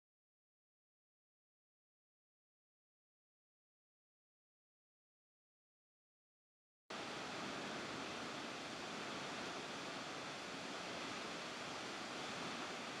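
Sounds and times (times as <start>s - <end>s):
waterfall rushing: 6.9s - 13.0s.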